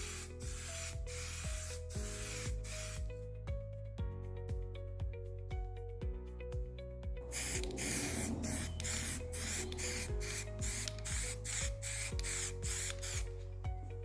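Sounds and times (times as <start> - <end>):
aerosol spray bursts: 0.0 - 3.1, 7.3 - 13.4.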